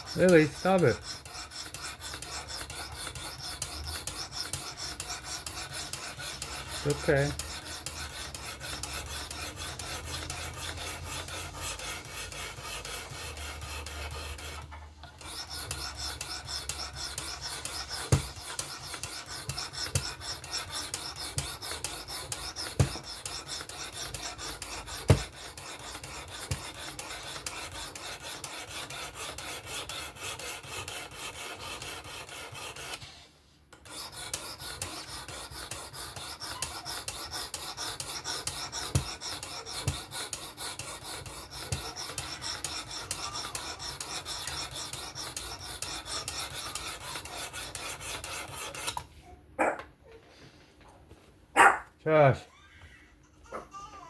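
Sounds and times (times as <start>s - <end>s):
stone rasping on knife blade: 0.0s - 33.1s, 33.8s - 49.0s
sharp knocks: 18.0s - 18.4s, 22.7s - 23.1s, 25.0s - 25.4s.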